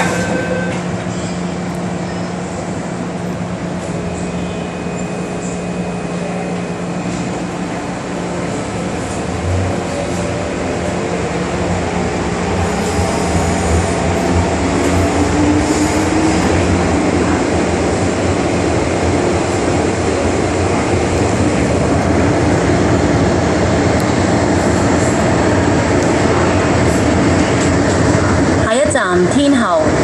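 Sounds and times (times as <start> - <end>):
train wheel and track rumble: 0.0 - 30.0.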